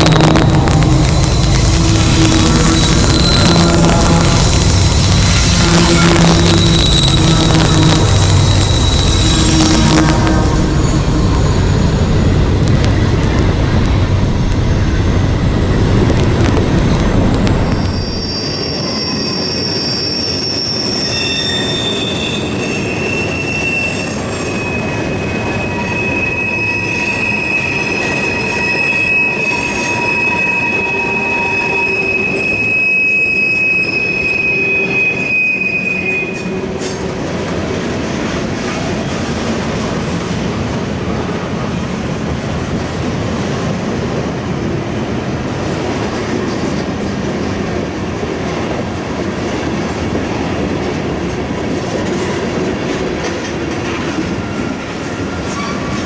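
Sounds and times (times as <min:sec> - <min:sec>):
steel wheels squealing on rail: 0:00.0 - 0:37.3, 0:38.0 - 0:39.5, 0:46.5 - 0:56.0
railroad cars rumbling past: 0:00.0 - 0:56.0.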